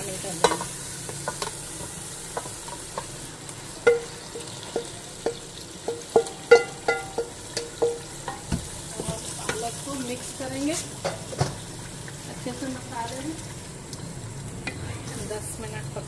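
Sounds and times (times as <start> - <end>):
food sizzling in oil: 0.0 - 16.0
metal bowl clinking on pot: 3.8 - 8.5.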